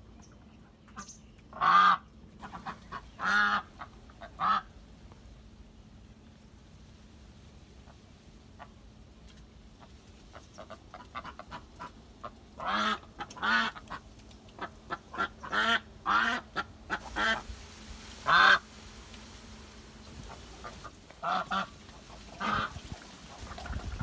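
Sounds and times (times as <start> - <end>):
bird calling: 0.2 - 4.6.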